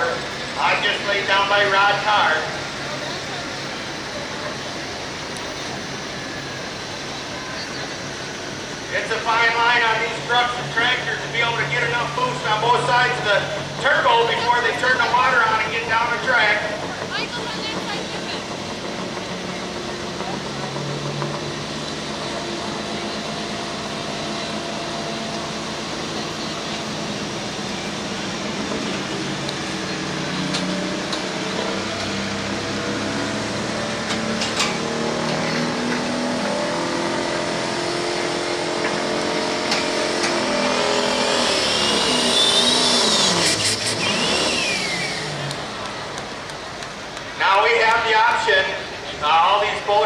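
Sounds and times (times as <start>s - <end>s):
diesel truck engine under load: 0.0s - 50.0s
high turbo whistle: 35.0s - 46.5s.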